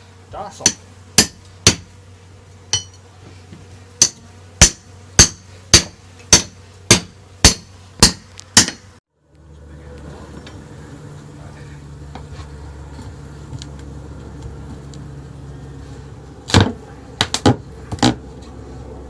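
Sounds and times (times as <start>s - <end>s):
hammer striking: 0.6s - 1.9s, 2.7s - 3.0s, 4.0s - 8.9s.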